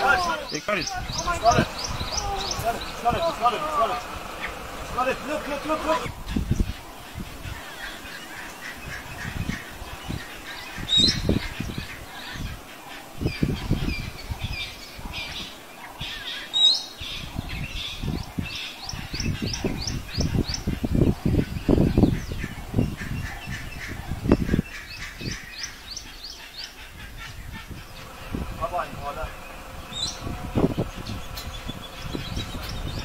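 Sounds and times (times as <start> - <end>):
low rumbling gusts: 0.0 - 8.1, 27.1 - 33.0
bird chirping: 0.0 - 33.0.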